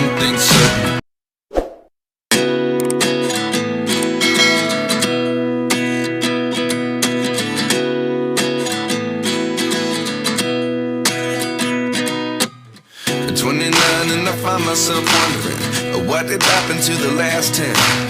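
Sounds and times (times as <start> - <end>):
acoustic guitar strumming chords: 2.3 - 18.0.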